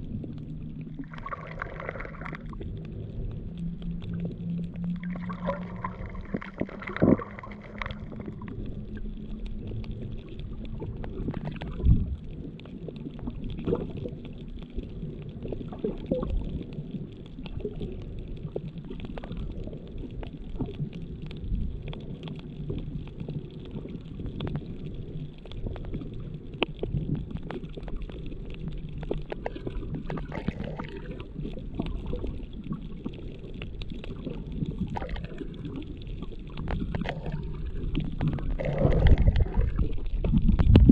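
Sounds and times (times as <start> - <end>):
muffled underwater rumble: 0.0 - 40.9
short clicks and crackles: 0.6 - 40.9
humming tone: 2.2 - 12.3.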